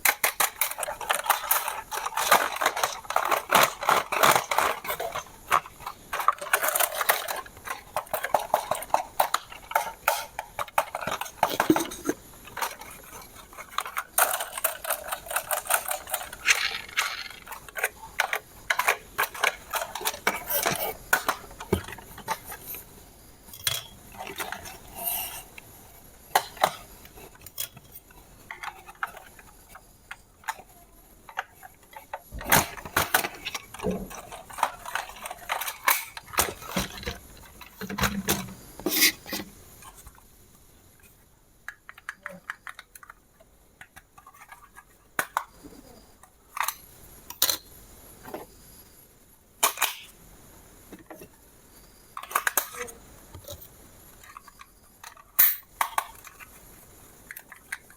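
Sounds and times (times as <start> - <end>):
small hard objects clattering: 0.0 - 22.9, 23.5 - 40.3.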